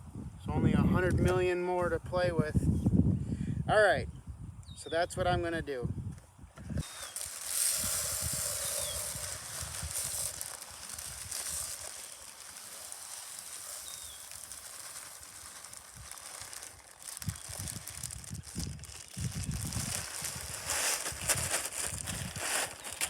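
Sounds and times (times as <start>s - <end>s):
seed spreader rattling hiss: 6.7s - 23.0s.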